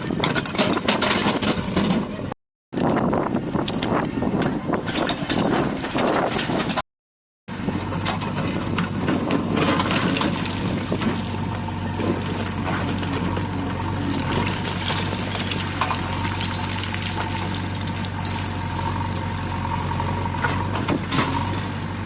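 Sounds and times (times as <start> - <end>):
heavy diesel engine running: 7.5 - 22.0.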